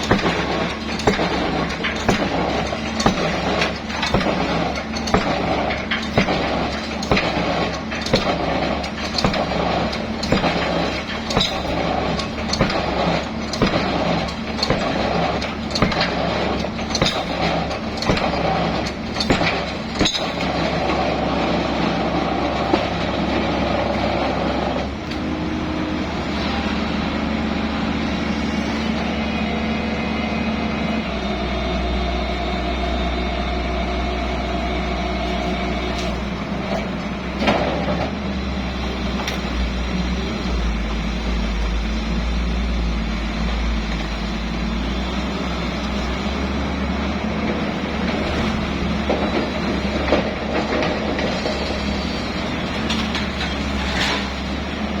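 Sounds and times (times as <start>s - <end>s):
sharp knocks: 0.0s - 11.8s
diesel excavator running: 0.0s - 55.0s.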